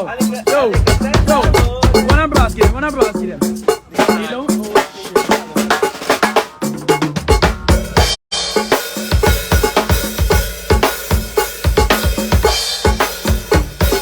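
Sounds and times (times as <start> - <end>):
snare drum: 0.0 - 14.0
cymbal hits: 0.7 - 5.8
kick drum: 0.8 - 3.0.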